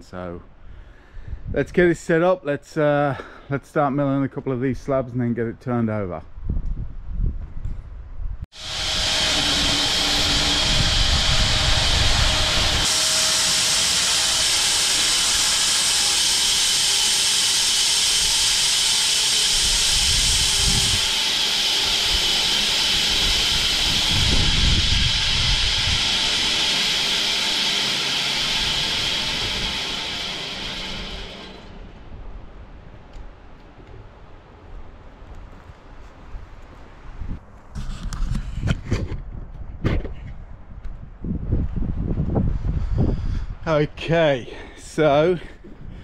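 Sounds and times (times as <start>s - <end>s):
bandsaw mill sawing log: 8.5s - 32.4s.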